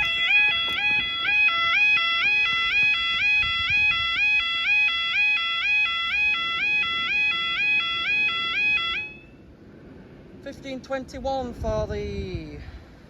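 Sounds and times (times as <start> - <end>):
two-tone electronic crossing alarm: 0.0 - 9.5.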